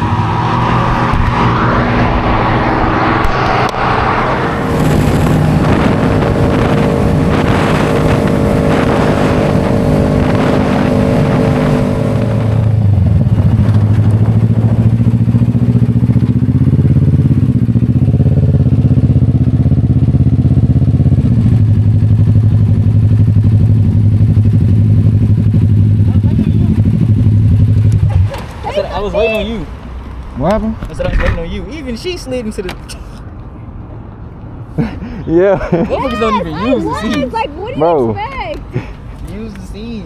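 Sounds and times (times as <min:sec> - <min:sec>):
wind and road noise: 0:00.0 - 0:40.0
motorcycle engine running: 0:02.4 - 0:28.6.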